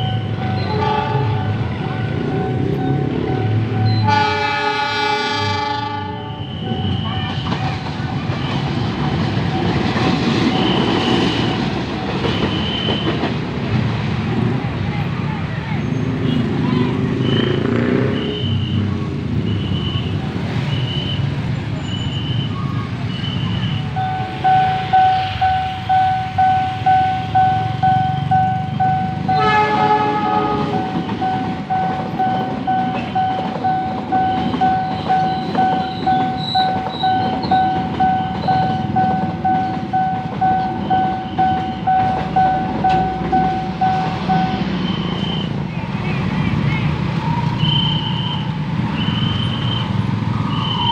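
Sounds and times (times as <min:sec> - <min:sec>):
railroad crossing bell ringing: 0:00.0 - 0:13.3, 0:21.6 - 0:45.6
road traffic rumble: 0:00.0 - 0:50.9
train horn blast: 0:00.6 - 0:01.6, 0:03.9 - 0:06.8, 0:29.2 - 0:31.1
high regular beeps: 0:21.9 - 0:29.3, 0:30.8 - 0:46.0.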